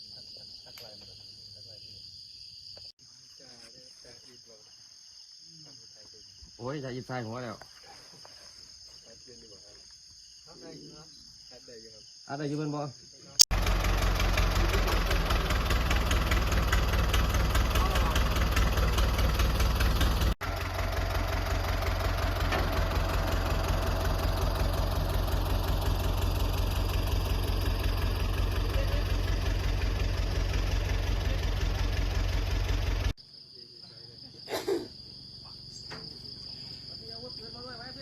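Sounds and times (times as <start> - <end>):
insects: 0.0 - 13.5, 14.3 - 38.0
engine running: 13.5 - 33.2.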